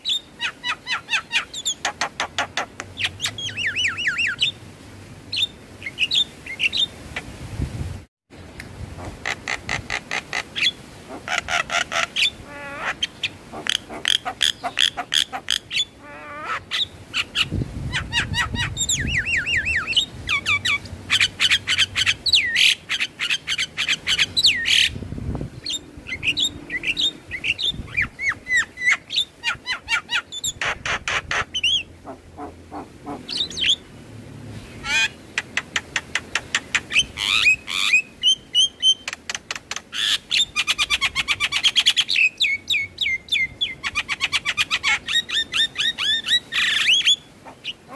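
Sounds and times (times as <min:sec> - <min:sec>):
mynas chirping and whistling: 0:03.0 - 0:04.5, 0:15.7 - 0:20.8.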